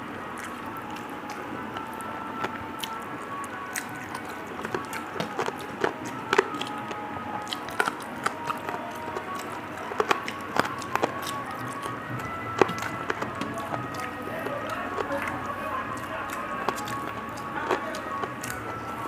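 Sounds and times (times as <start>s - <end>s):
faint background music: 0.0s - 19.0s
person chewing and smacking: 0.0s - 19.0s.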